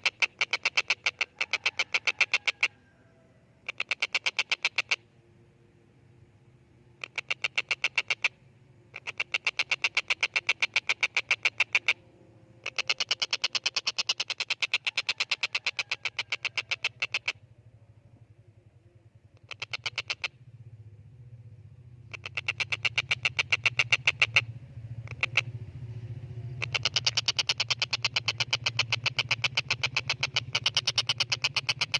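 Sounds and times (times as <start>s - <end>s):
kingfisher rapid sharp calls: 0.0s - 2.8s, 3.6s - 5.0s, 7.0s - 17.4s, 19.4s - 20.4s, 22.0s - 31.9s.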